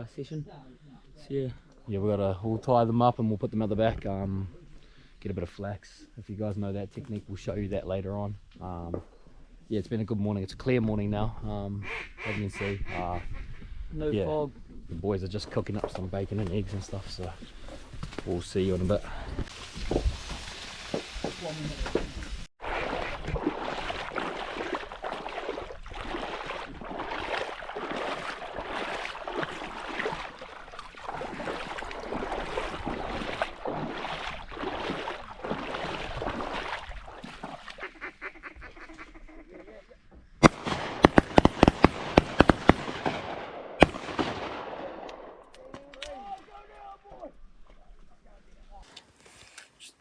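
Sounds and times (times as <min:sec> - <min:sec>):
ducks quacking: 0:11.8 - 0:13.6, 0:37.7 - 0:40.1
loud sharp cracks: 0:40.4 - 0:45.4.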